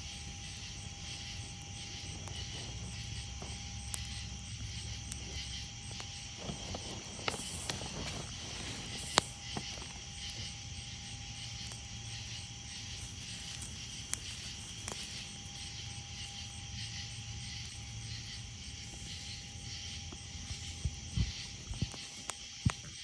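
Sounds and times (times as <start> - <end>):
campfire pops: 0.0 - 23.0
crickets chirping: 0.0 - 23.0.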